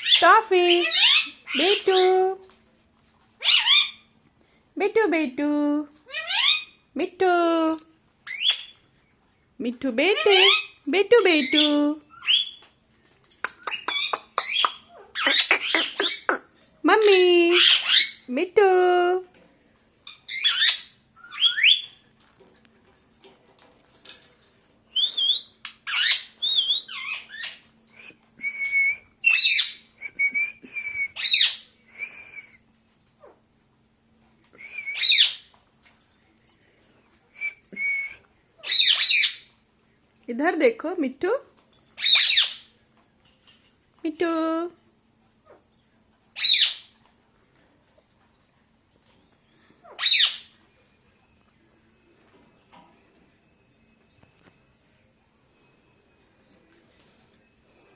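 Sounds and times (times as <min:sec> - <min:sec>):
parakeet squawks: 0:00.0 - 0:02.0, 0:03.4 - 0:04.1, 0:06.1 - 0:06.8, 0:13.6 - 0:16.4, 0:38.6 - 0:39.5, 0:42.0 - 0:42.7, 0:46.4 - 0:46.9, 0:49.8 - 0:50.5
parakeet whistling: 0:20.3 - 0:22.0, 0:34.8 - 0:35.4, 0:49.8 - 0:50.5
parakeet sharp sweeping calls: 0:49.8 - 0:50.5.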